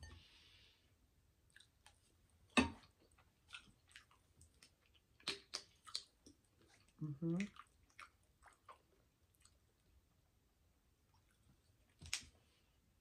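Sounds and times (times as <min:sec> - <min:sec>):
person chewing food: 0:01.5 - 0:10.1, 0:11.0 - 0:12.6
wet mouth clicks and smacks: 0:03.5 - 0:06.8.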